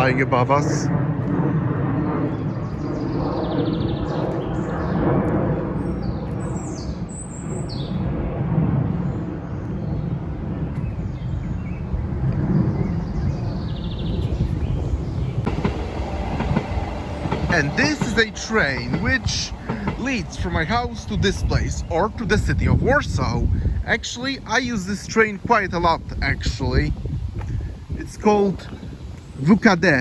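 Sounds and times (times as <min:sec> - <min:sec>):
small birds chirping: 0:12.7 - 0:22.4
electric train rumbling: 0:14.1 - 0:28.0.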